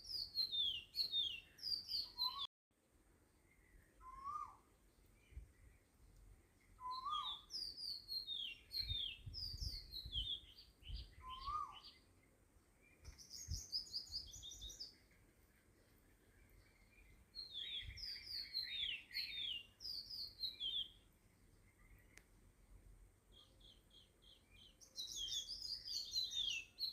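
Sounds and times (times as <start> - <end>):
birds chirping: 0.0 - 2.5, 3.3 - 26.9
lower bird call: 0.0 - 2.5, 3.6 - 5.8, 6.8 - 12.1, 15.9 - 21.0.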